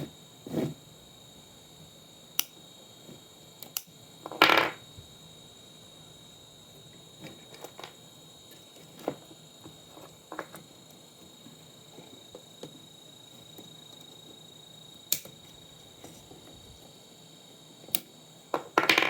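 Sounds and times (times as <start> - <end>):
tools and small parts clicking: 3.6 - 4.4.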